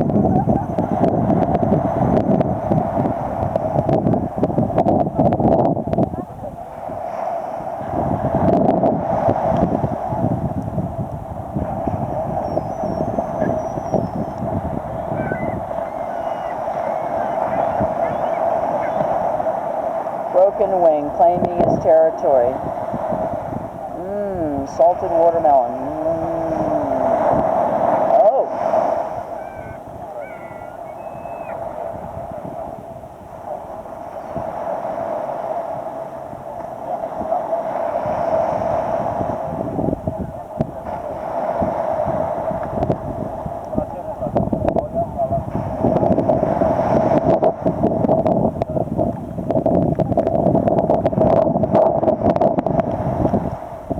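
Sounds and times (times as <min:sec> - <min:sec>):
surf washing: 0:00.0 - 0:53.9
wind: 0:00.0 - 0:53.9
mid-pitched hum: 0:09.6 - 0:31.8
seagulls calling: 0:12.2 - 0:19.5, 0:28.9 - 0:31.8.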